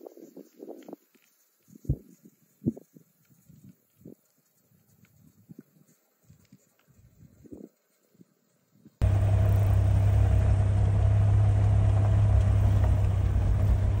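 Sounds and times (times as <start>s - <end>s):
faint steady hum: 9.0s - 14.0s
loud low rumble: 9.0s - 14.0s.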